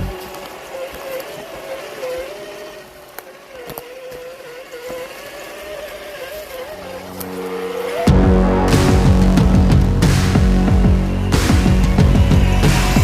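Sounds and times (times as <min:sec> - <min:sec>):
electric motor whine: 0:00.0 - 0:13.0
loud music: 0:08.1 - 0:13.0.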